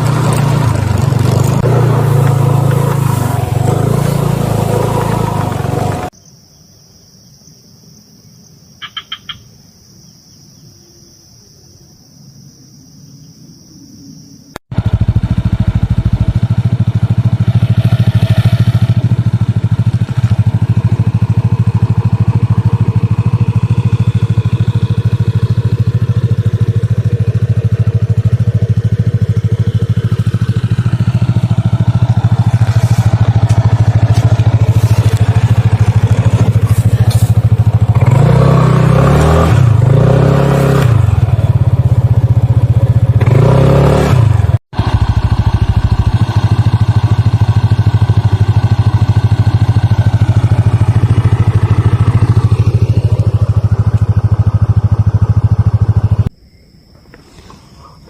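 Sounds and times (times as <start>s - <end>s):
low motor-like drone: 14.7s - 38.2s.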